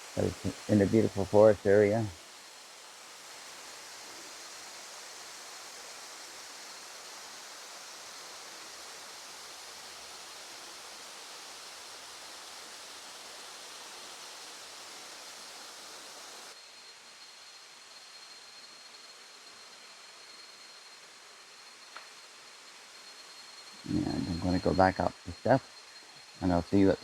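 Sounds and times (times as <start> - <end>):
waterfall rushing: 0.0 - 2.2, 5.8 - 16.6.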